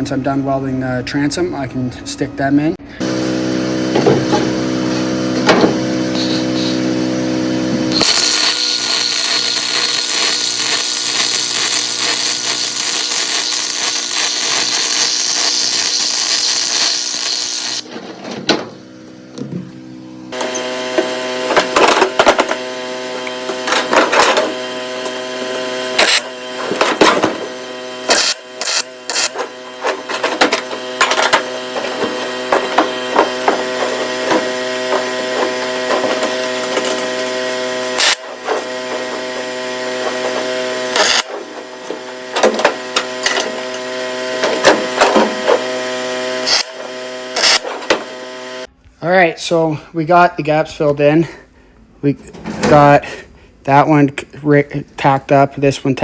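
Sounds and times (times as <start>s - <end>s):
welder electrical hum: 0.0s - 56.0s
harsh high hiss: 6.0s - 17.8s
welding arc crackles: 6.0s - 17.9s, 23.1s - 47.7s.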